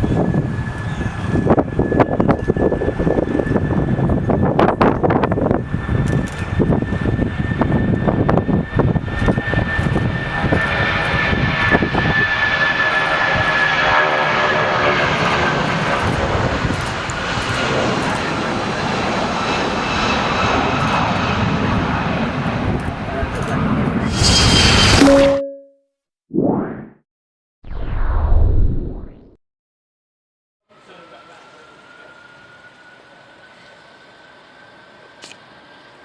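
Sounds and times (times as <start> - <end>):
wind buffeting microphone: 0.0 - 13.6
jet engines running loud: 0.0 - 25.0.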